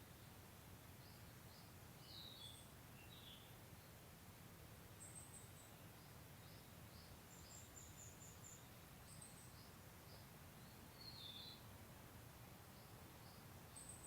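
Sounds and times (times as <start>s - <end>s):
small birds chirping: 5.0s - 11.7s, 12.6s - 14.0s.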